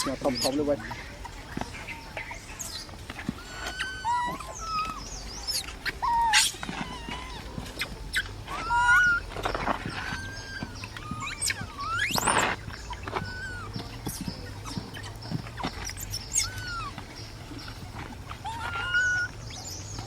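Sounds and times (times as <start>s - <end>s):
baby monkey crying: 0.0s - 1.1s, 3.3s - 15.1s, 15.8s - 17.0s, 18.4s - 19.7s
rustling: 0.0s - 20.0s.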